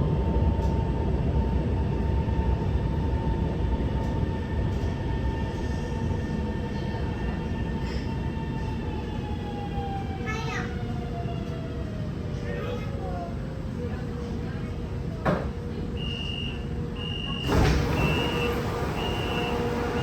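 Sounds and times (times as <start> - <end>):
train running rumble: 0.0 - 9.9, 16.8 - 20.0.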